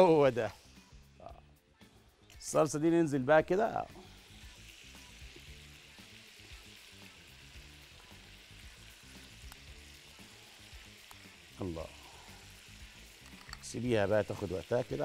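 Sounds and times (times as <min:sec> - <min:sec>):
chicken sizzling in a pan: 0:03.5 - 0:15.0.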